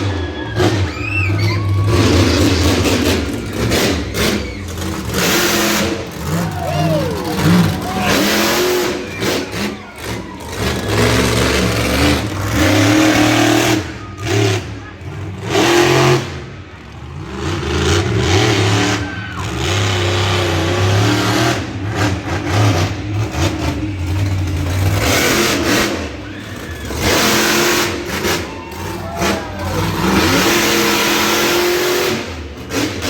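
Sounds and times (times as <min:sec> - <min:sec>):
truck engine revving hard: 0:00.0 - 0:33.0.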